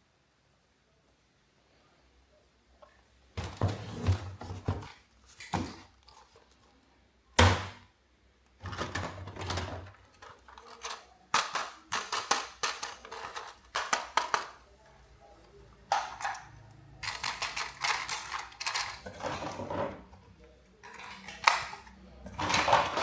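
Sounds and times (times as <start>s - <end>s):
plastic toys clattering: 8.6s - 14.7s, 15.8s - 23.0s.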